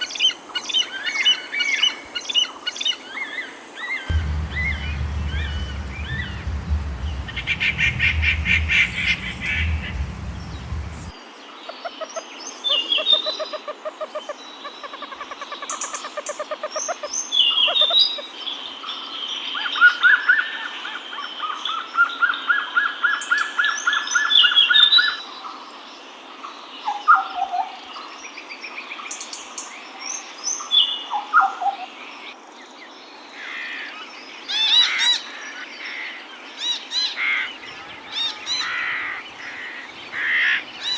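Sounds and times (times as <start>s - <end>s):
birds calling and singing: 4.1s - 11.1s, 37.2s - 40.9s
low-pitched background noise: 4.1s - 11.2s, 37.5s - 40.9s.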